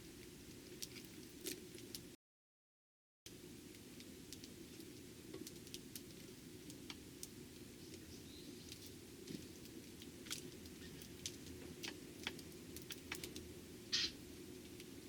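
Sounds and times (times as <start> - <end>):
bird chirp: 7.8 - 8.7, 13.9 - 14.2.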